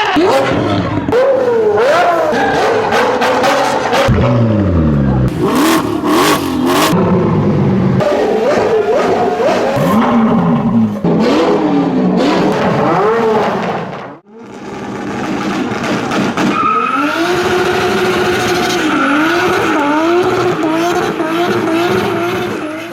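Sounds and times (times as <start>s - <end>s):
car engine revving: 0.1s - 22.9s.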